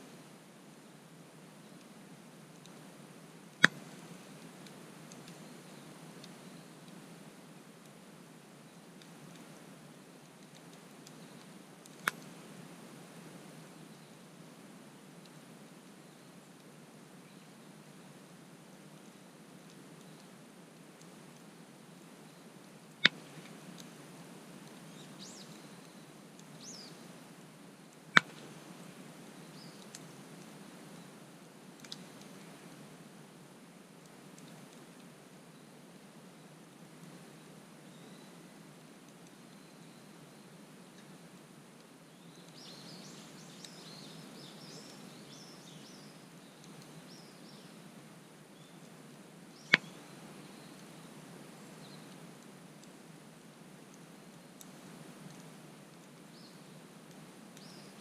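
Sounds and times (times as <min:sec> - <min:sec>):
campfire burning: 0:00.3 - 0:17.1, 0:17.7 - 0:37.6, 0:47.7 - 0:57.6
small birds chirping: 0:02.6 - 0:07.0, 0:10.4 - 0:12.4, 0:19.0 - 0:20.4, 0:21.0 - 0:32.8, 0:34.1 - 0:38.6, 0:42.0 - 0:53.1, 0:53.9 - 0:58.0
bird chirping: 0:24.9 - 0:27.1, 0:29.4 - 0:30.0, 0:42.1 - 0:47.8, 0:49.5 - 0:52.2, 0:57.6 - 0:58.0.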